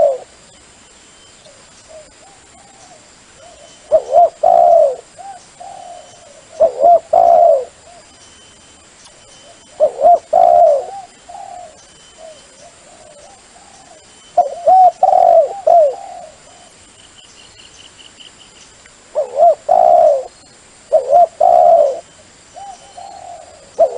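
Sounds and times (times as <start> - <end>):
dove cooing: 0.0 - 0.4, 1.5 - 8.1, 9.4 - 16.8, 19.1 - 23.9.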